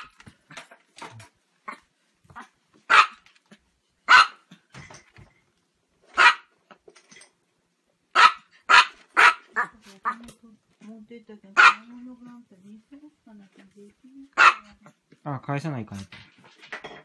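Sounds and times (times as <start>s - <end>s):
small dog yapping: 1.7s - 3.3s, 4.1s - 4.4s, 6.2s - 6.5s, 8.2s - 10.2s, 11.6s - 11.9s, 14.4s - 14.6s.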